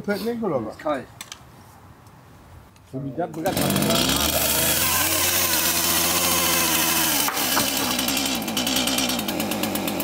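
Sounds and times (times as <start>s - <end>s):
chainsaw running: 3.4s - 10.0s.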